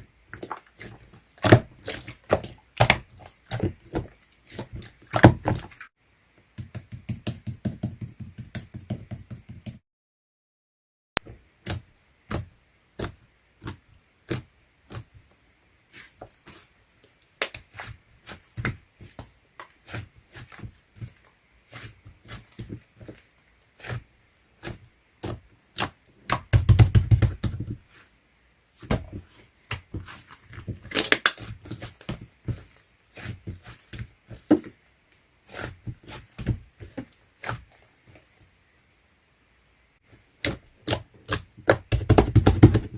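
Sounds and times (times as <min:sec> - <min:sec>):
slime squishing: 0:00.3 - 0:05.8, 0:11.6 - 0:15.2, 0:15.9 - 0:28.1, 0:28.8 - 0:34.8, 0:35.4 - 0:38.4, 0:40.0 - 0:42.9.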